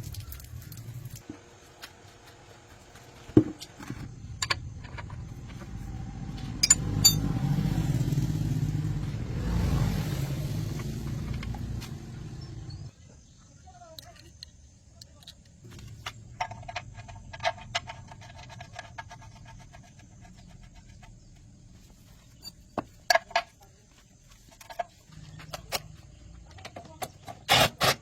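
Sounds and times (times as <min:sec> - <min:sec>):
engine running steadily: 0:03.4 - 0:12.9.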